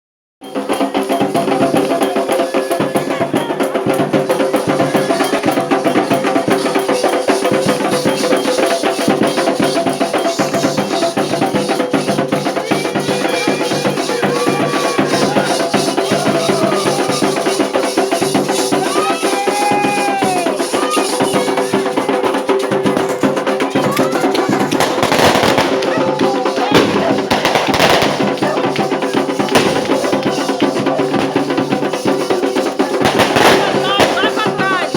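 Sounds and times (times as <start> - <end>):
hand drums fast rhythm: 0.4 - 34.9.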